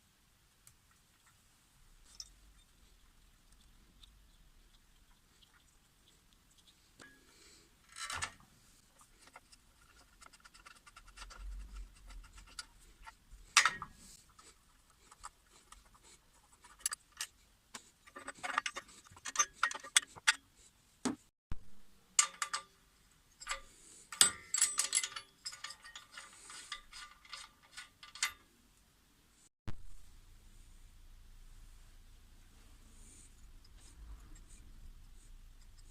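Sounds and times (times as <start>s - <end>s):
hand tools clicking and scraping: 7.0s - 20.5s, 22.2s - 28.5s.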